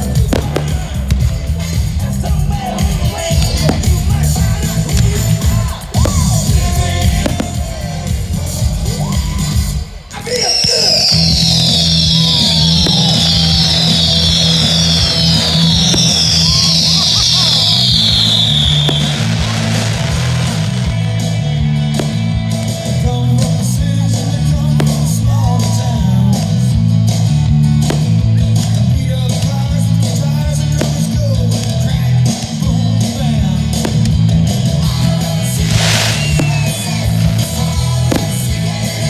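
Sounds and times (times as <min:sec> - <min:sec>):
firework bangs: 0:00.0 - 0:26.6, 0:27.8 - 0:39.0
rock music over loudspeakers: 0:00.0 - 0:39.0
burst of hiss: 0:10.6 - 0:21.4, 0:34.9 - 0:39.0.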